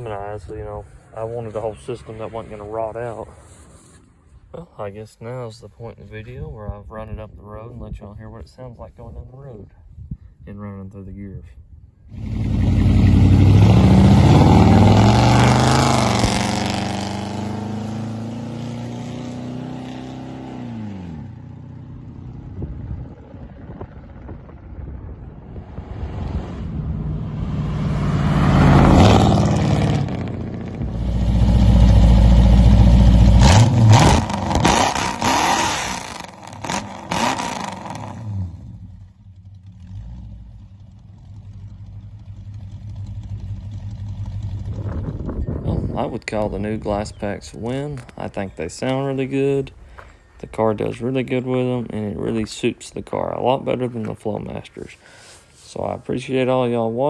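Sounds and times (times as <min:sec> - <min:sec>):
car engine accelerating hard: 0:12.1 - 0:46.8.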